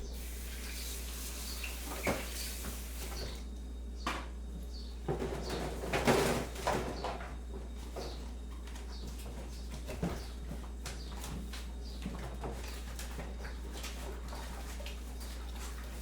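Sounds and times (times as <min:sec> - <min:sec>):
faint birds calling: 0:00.0 - 0:05.7
steady low hum: 0:00.0 - 0:16.0.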